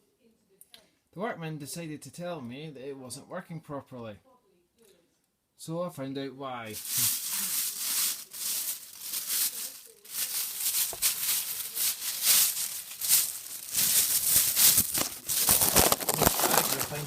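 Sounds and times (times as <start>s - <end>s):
debris rustling and rattling: 6.8s - 17.0s.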